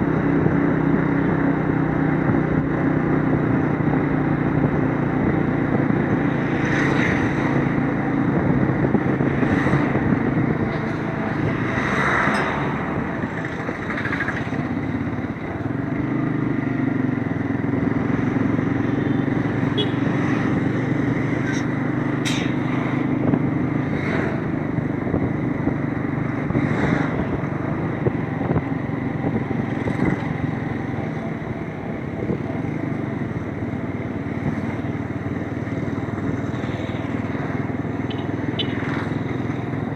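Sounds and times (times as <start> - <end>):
motorcycle engine running: 12.7 - 39.9.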